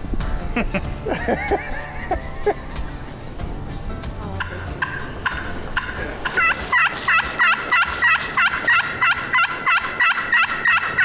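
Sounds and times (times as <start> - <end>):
wild turkey yelping: 4.4 - 11.0.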